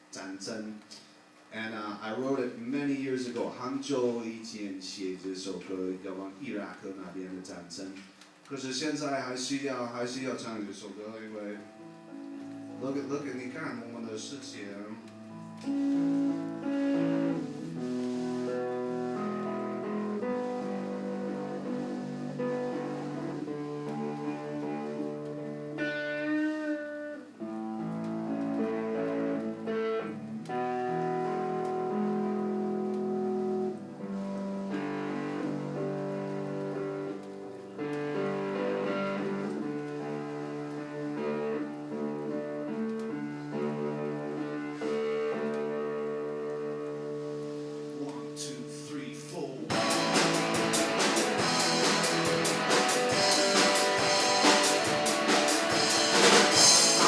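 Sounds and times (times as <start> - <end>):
live band guitar chords: 11.6 - 57.0
drum kit steady beat: 49.7 - 57.0.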